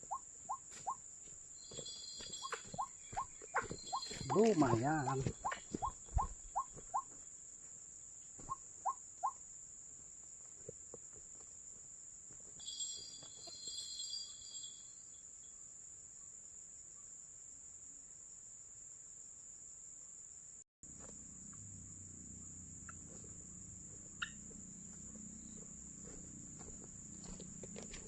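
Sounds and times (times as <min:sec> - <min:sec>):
high-pitched insect drone: 0:00.7 - 0:06.8, 0:12.4 - 0:15.5, 0:21.0 - 0:28.0
high chirping: 0:01.6 - 0:07.1, 0:12.6 - 0:15.2, 0:23.9 - 0:26.3.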